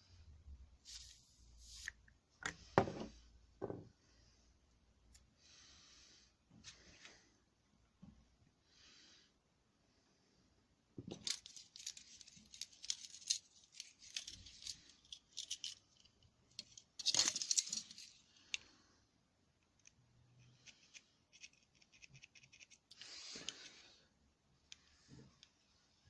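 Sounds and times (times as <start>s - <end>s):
small metal parts clinking: 11.1s - 18.2s
metal parts clattering: 11.2s - 18.2s.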